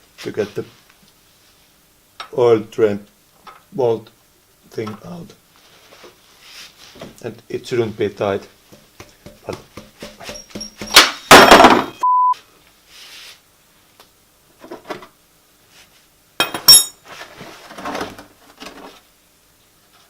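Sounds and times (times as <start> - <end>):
short pure beep: 12.0 - 12.4
metal clinks: 16.4 - 17.0.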